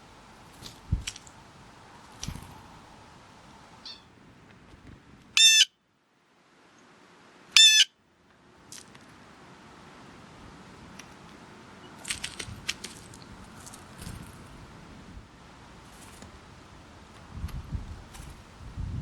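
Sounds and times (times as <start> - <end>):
bird giving short calls: 5.4 - 5.7, 7.6 - 7.9.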